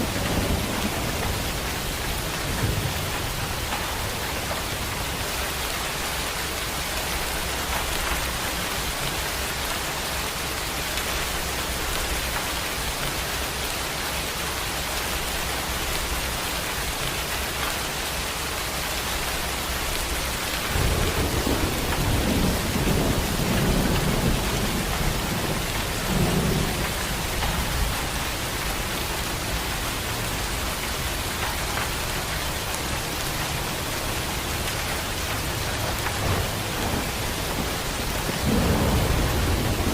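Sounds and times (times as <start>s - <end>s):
thunder rumbling: 0.0s - 9.6s, 19.8s - 39.9s
heavy rain falling: 0.0s - 39.9s.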